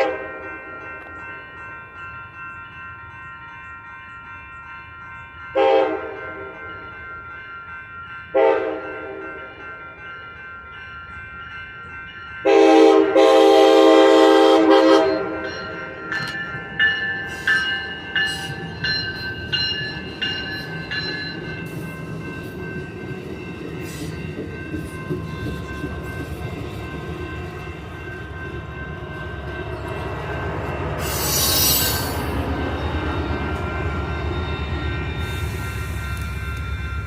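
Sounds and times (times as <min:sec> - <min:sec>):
railroad crossing bell ringing: 0:00.0 - 0:37.0
train wheels rumbling on rails: 0:11.5 - 0:37.0
high wheel squeal: 0:31.0 - 0:32.5.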